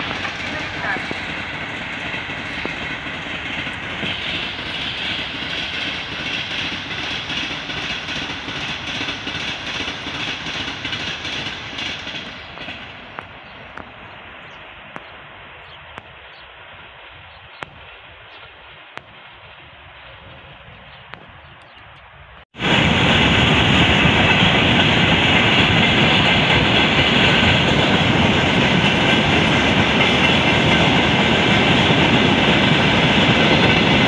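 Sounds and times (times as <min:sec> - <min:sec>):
passenger train rumbling past: 0:00.0 - 0:34.0
train wheels on rails: 0:00.0 - 0:34.0.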